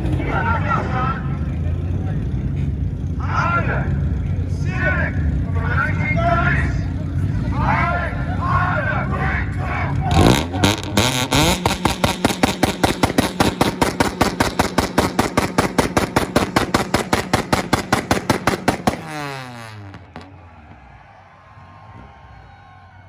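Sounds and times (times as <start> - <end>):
engine revs falling: 0.0 - 23.0
exhaust pops and bangs: 8.7 - 21.0.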